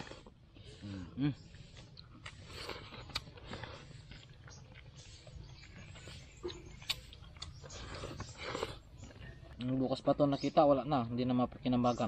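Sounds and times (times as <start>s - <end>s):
chewing and lip smacking: 1.5s - 9.8s.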